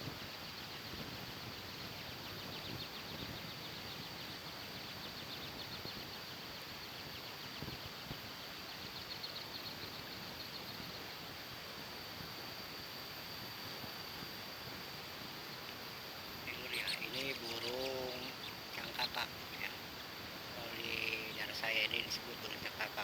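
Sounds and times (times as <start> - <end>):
background hiss: 9.3 - 23.0.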